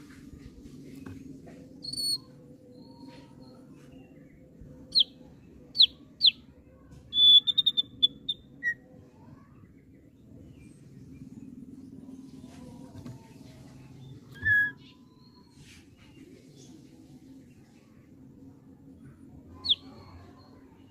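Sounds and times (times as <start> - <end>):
bird singing whistles: 7.1 - 8.8, 14.3 - 15.5, 19.6 - 20.0.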